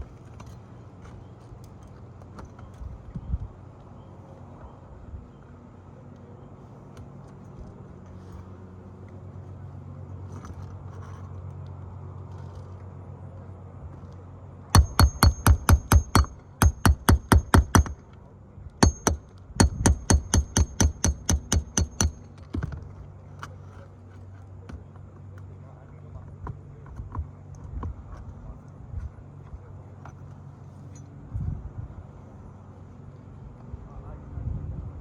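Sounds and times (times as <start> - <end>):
steady low hum: 0.0 - 35.0
hammer striking roofing nails: 14.8 - 18.1, 18.8 - 22.8.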